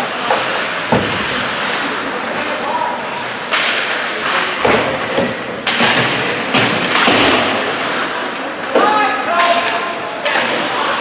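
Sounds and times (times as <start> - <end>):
skates hissing on ice: 0.0 - 4.6, 7.1 - 8.4, 10.2 - 11.0
puck and bodies hitting boards: 0.0 - 11.0.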